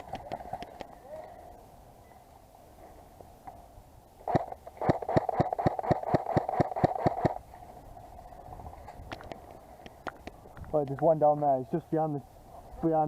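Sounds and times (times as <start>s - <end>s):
airsoft rifle rapid fire: 4.3s - 7.4s.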